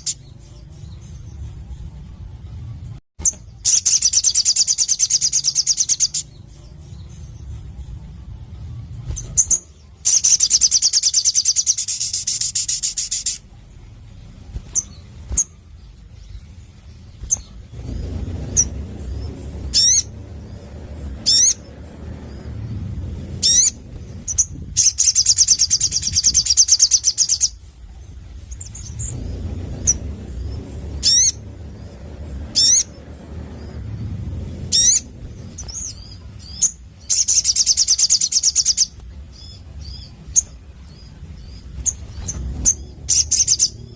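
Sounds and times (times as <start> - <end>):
high whistled bird notes: 14.6 - 40.6
bird trilling: 17.1 - 27.6, 28.4 - 40.5.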